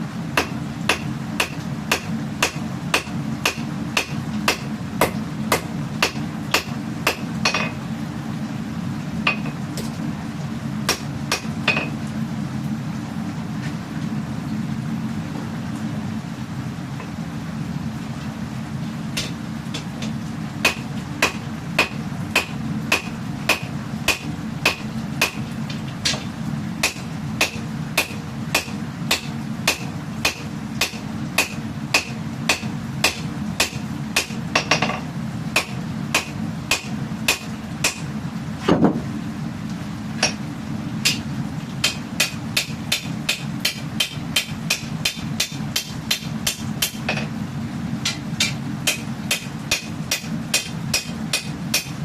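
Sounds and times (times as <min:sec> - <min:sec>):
low steady hum: 0:00.0 - 0:52.0
hammer striking steel on anvil: 0:00.4 - 0:07.8, 0:10.9 - 0:11.9, 0:20.6 - 0:25.4, 0:26.0 - 0:35.0, 0:35.6 - 0:38.1, 0:41.0 - 0:41.2, 0:41.8 - 0:47.3, 0:48.0 - 0:52.0.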